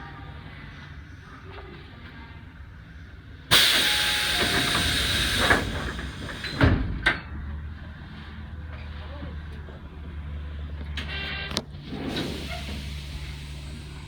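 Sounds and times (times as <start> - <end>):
loud air hiss: 3.5 - 6.6, 12.1 - 14.0.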